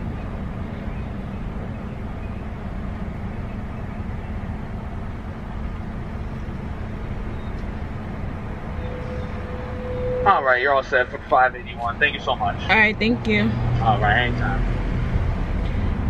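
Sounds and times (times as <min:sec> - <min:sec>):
car idling from inside: 0:00.0 - 0:14.6.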